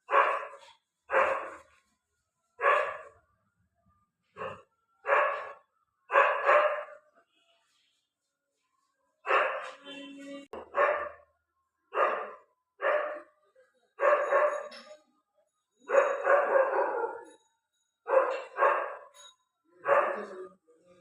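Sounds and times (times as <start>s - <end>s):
dog barking: 0.0s - 1.7s, 2.6s - 3.2s, 4.4s - 7.1s, 9.2s - 9.9s, 10.6s - 11.3s, 11.9s - 13.4s, 14.0s - 14.8s, 15.9s - 17.3s, 18.1s - 19.2s, 19.8s - 20.4s.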